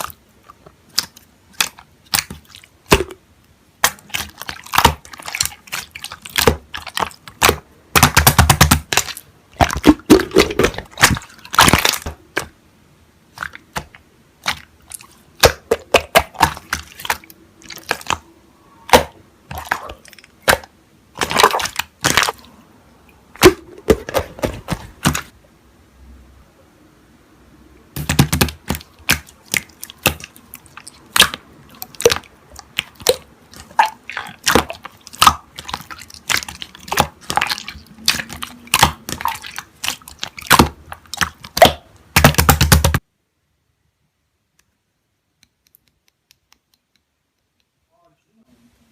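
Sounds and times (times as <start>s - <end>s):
slime clicking and popping: 0.8s - 12.5s, 13.3s - 18.3s, 18.9s - 22.5s, 28.0s - 43.0s.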